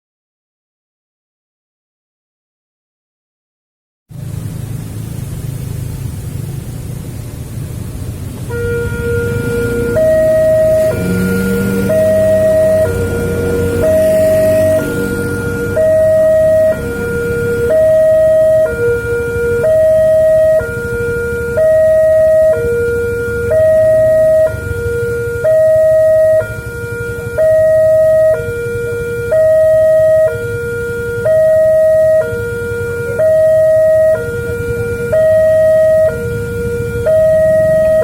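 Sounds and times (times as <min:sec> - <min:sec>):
low rumble: 0:04.1 - 0:38.0
level crossing two-tone alarm: 0:08.5 - 0:38.0.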